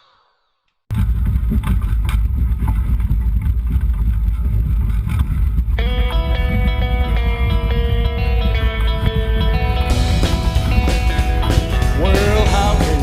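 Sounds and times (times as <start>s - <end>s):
guitar song: 5.8s - 13.0s.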